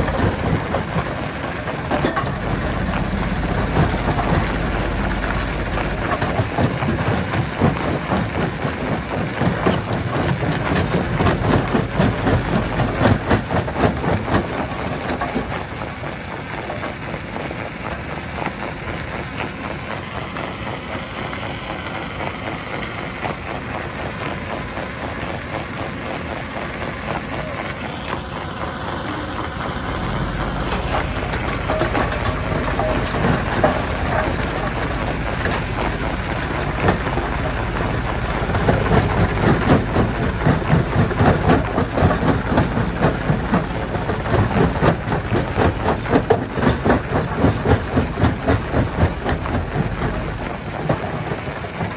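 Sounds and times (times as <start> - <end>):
rapid clatter of knocks: 0.0 - 17.8, 29.8 - 51.9
heavy engine running: 0.0 - 51.9.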